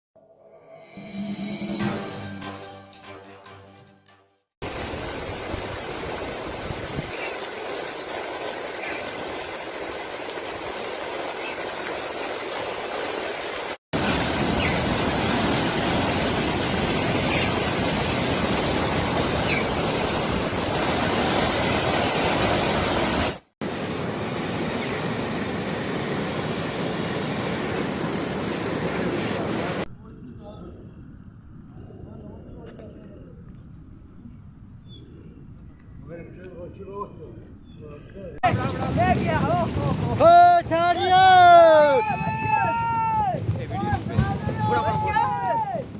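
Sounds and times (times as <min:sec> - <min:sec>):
music: 0:00.8 - 0:04.5
heavy rain hissing: 0:04.6 - 0:29.9
running water: 0:04.6 - 0:29.9.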